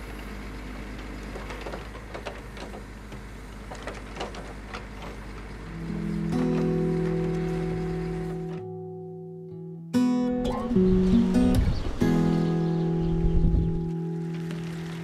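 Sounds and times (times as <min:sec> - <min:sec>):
low engine hum: 0:00.0 - 0:09.6, 0:10.6 - 0:15.0
crane clicks and knocks: 0:00.9 - 0:07.6.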